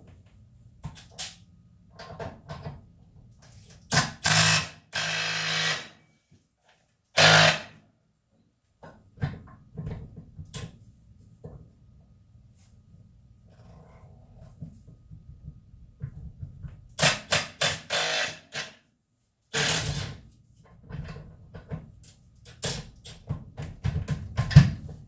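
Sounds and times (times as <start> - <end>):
impact wrench bursts: 7.2 - 7.7.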